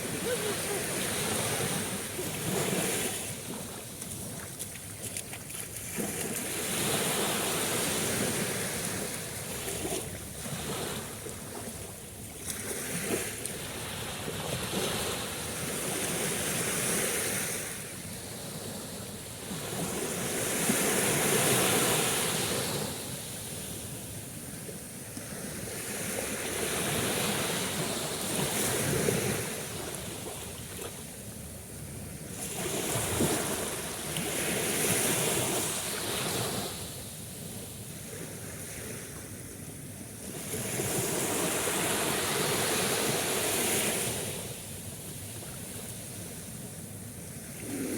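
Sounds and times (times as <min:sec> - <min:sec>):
sea waves washing in: 0:00.0 - 0:11.7.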